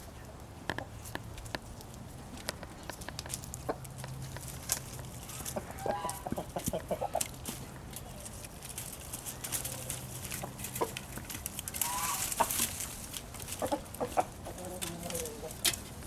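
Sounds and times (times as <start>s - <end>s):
chickens clucking: 3.6s - 16.0s.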